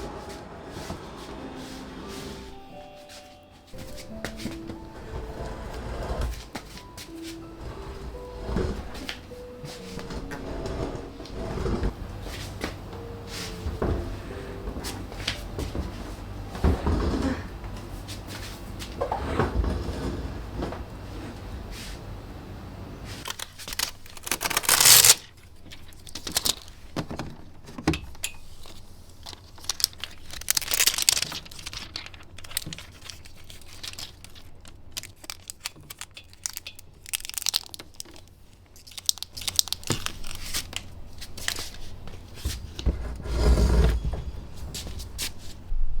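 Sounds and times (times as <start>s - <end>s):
packaging tearing and crumpling: 23.2s - 26.8s, 29.2s - 42.1s.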